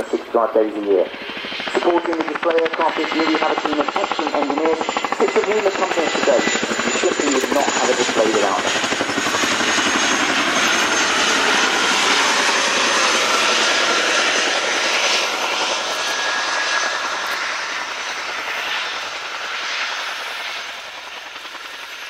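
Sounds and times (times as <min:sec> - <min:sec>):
helicopter rotors and engines: 0:00.0 - 0:22.0.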